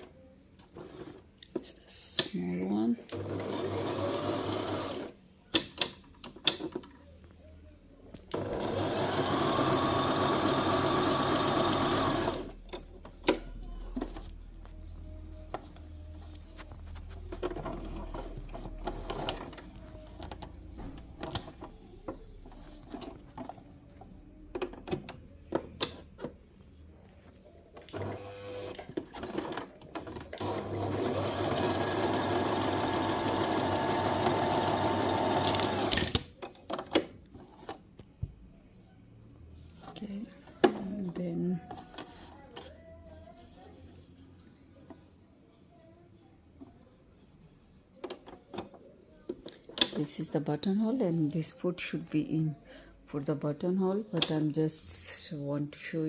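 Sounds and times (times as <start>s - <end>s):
sewing machine stitching: 3.1s - 5.1s, 8.3s - 12.5s, 27.8s - 36.2s.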